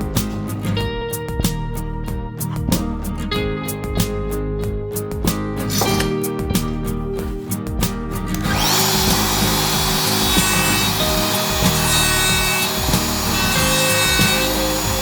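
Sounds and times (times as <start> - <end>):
guitar music: 0.0 - 15.0
machine sanding wood: 8.4 - 15.0.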